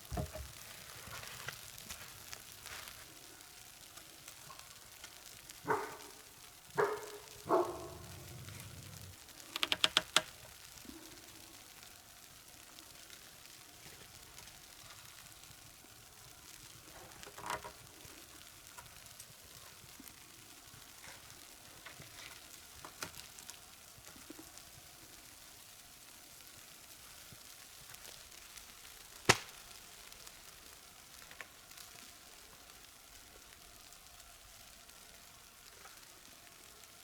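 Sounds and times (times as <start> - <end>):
faint sizzling: 0.0 - 37.0
short knocks: 0.1 - 0.6.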